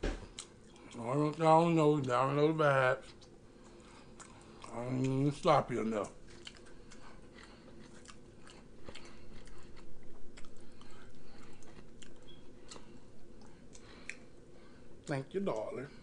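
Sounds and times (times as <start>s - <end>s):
faint steady hum: 0.0s - 16.0s
person chewing: 0.3s - 1.1s, 3.1s - 14.4s.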